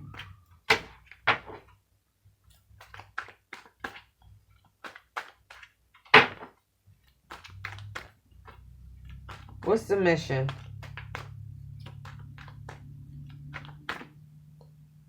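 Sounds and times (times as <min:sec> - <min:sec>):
cards tapping on table: 0:10.5 - 0:14.2.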